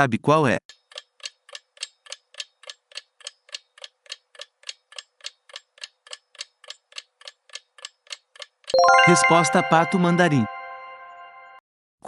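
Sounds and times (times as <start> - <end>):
clock ticking: 0.7 - 8.7.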